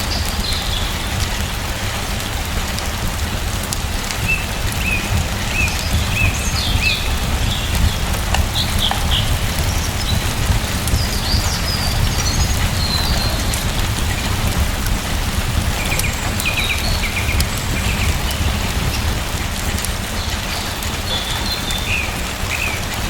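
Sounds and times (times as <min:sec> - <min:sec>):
steady rain falling: 0:00.0 - 0:23.0
birds chirping: 0:04.1 - 0:14.7, 0:15.7 - 0:19.3.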